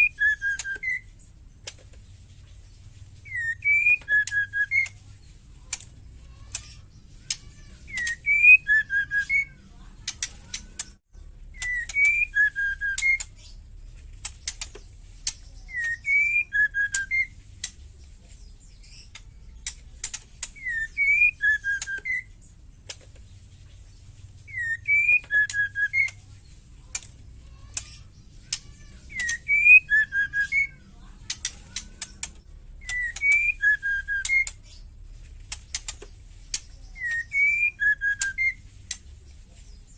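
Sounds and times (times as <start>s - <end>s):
bird whistling call: 0.0s - 1.1s, 3.2s - 5.0s, 7.3s - 9.6s, 11.6s - 13.3s, 15.7s - 17.4s, 20.5s - 22.4s, 24.5s - 26.2s, 28.5s - 30.8s, 32.8s - 34.6s, 36.9s - 38.6s.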